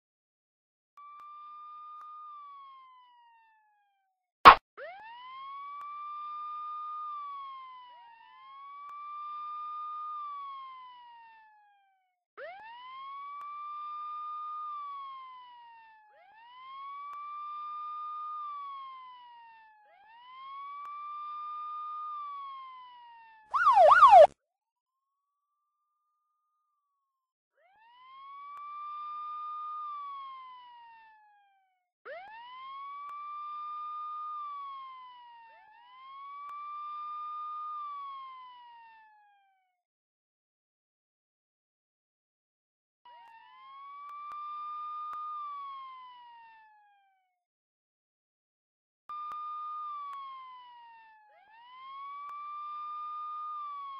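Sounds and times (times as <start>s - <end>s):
police siren wailing: 23.6s - 24.3s.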